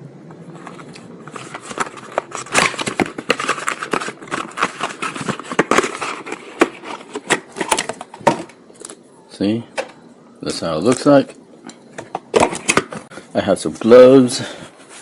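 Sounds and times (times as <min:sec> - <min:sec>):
cardboard box crackling: 0:00.6 - 0:08.5.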